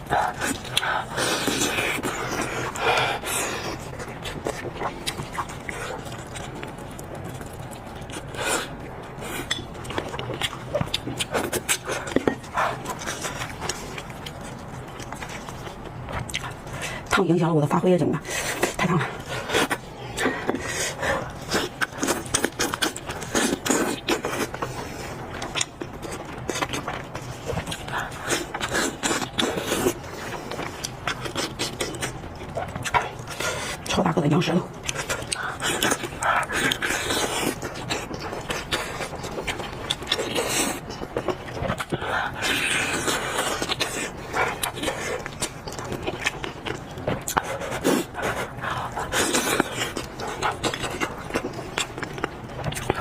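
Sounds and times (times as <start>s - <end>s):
wet chewing smacks: 18.2s - 33.9s, 34.6s - 53.0s.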